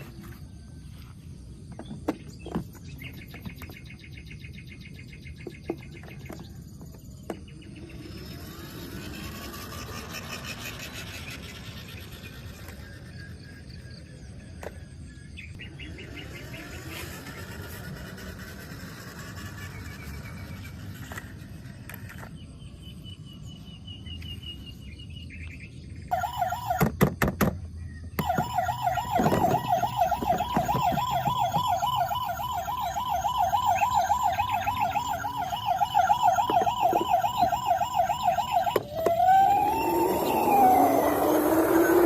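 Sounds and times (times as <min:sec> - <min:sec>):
toy siren warbling: 0:07.9 - 0:13.7, 0:26.1 - 0:27.0, 0:28.2 - 0:42.0.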